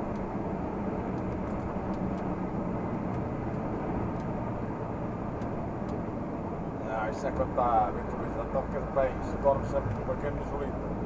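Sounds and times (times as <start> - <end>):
diesel truck engine rumbling: 0.0 - 11.0
road noise: 0.0 - 11.0.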